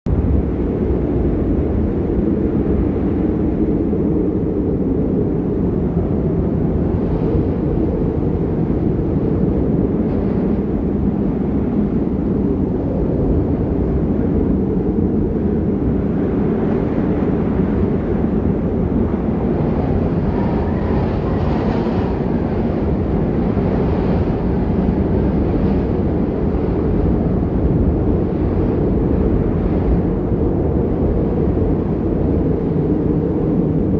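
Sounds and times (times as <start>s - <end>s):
wind buffeting microphone: 0.1s - 33.9s.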